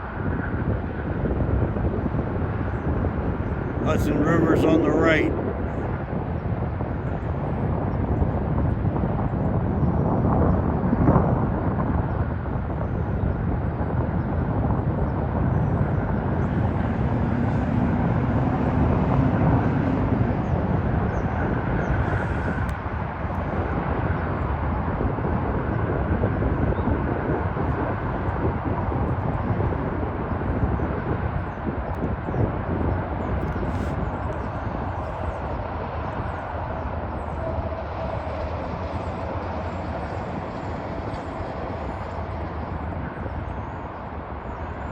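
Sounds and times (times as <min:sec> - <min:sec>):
distant diesel locomotive rumble: 0:33.0 - 0:44.9.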